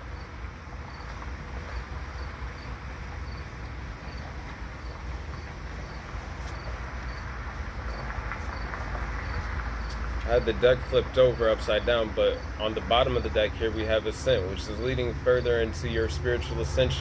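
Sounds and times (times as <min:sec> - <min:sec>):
faint high insect chirp: 0:00.0 - 0:10.0
steady low rumble: 0:00.0 - 0:17.0.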